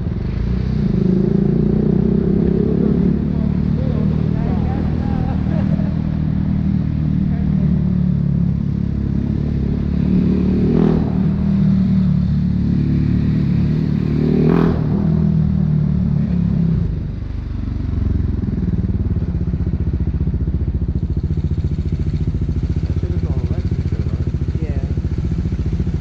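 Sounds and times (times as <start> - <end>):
motorcycle engine running: 0.0 - 26.0
engine idling putter: 18.2 - 26.0.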